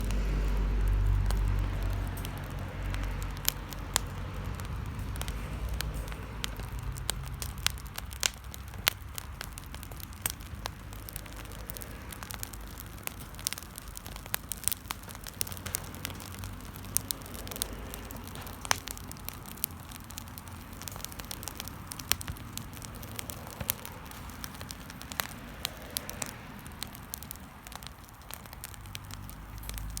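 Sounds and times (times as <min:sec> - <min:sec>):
low rumble: 0:00.0 - 0:08.8
bonfire crackling and popping: 0:00.0 - 0:30.0.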